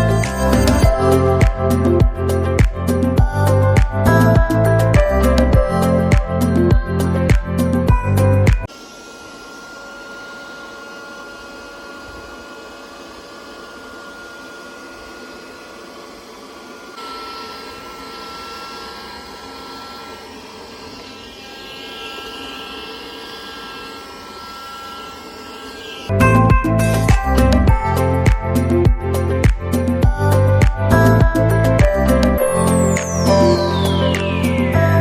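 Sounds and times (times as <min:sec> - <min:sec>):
window vacuum motor whine: 0:08.6 - 0:29.0, 0:30.6 - 0:35.0.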